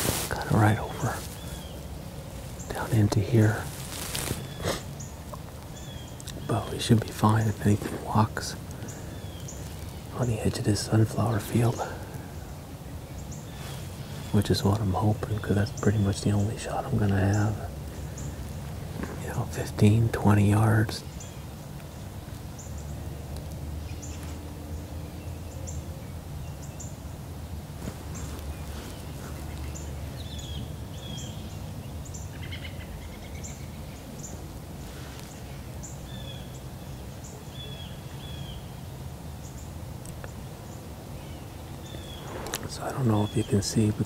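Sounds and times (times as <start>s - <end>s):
steady low rumble: 0.0s - 25.2s
small birds chirping: 0.0s - 44.0s.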